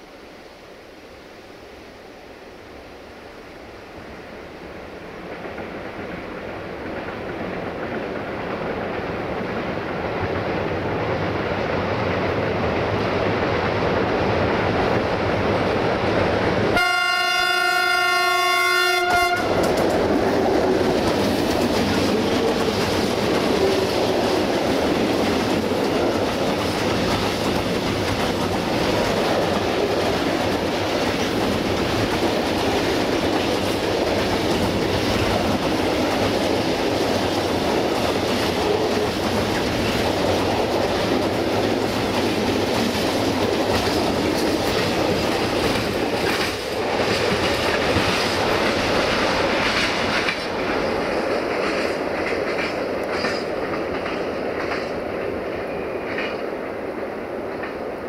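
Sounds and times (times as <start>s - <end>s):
train wheels rumbling on rails: 3.1s - 58.0s
locomotive horn blast: 16.8s - 19.6s.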